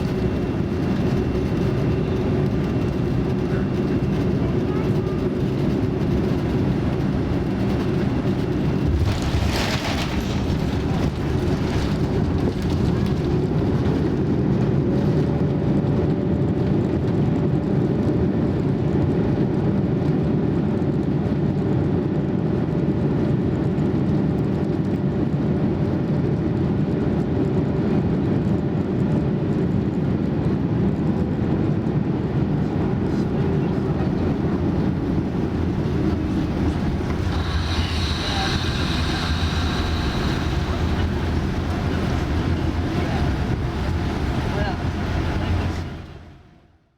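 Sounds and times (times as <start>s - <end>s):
airplane cabin rumble: 0.0s - 46.8s
faint steady whine: 32.4s - 46.6s
hissing air rush: 33.2s - 45.9s.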